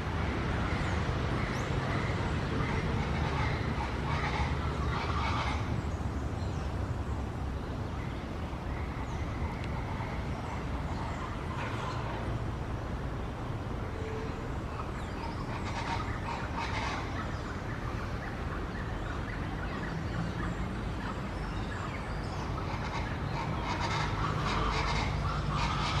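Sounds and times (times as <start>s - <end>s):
steady low rumble: 0.0s - 26.0s
bird calls: 14.0s - 26.0s.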